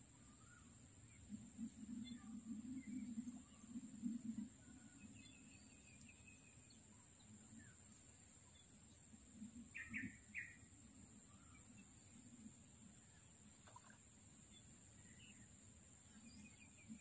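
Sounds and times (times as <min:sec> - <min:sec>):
bird chirping: 0:08.5 - 0:12.3, 0:13.2 - 0:17.0.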